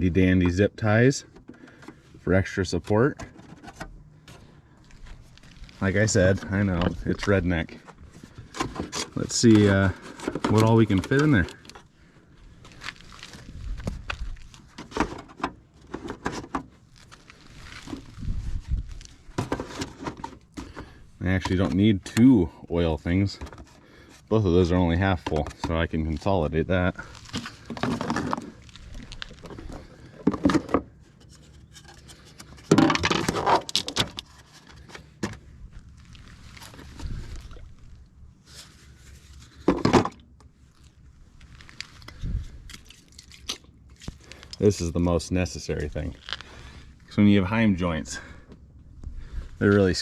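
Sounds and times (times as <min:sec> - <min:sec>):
plastic bottles knocking and clunking: 0:07.8 - 0:11.8, 0:19.3 - 0:21.8, 0:25.2 - 0:25.9, 0:27.3 - 0:31.0, 0:31.8 - 0:35.5, 0:39.5 - 0:40.3.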